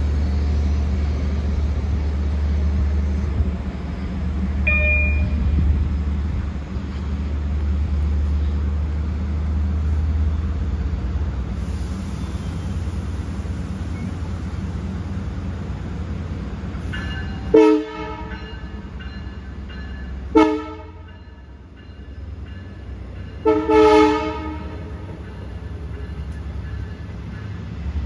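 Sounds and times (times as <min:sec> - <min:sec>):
train engine low rumble: 0:00.0 - 0:28.0
short high beep: 0:04.7 - 0:05.6.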